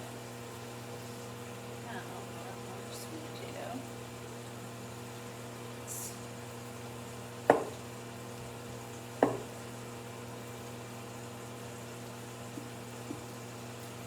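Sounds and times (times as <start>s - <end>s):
knife chopping on cutting board: 7.5s - 7.8s, 9.2s - 9.5s.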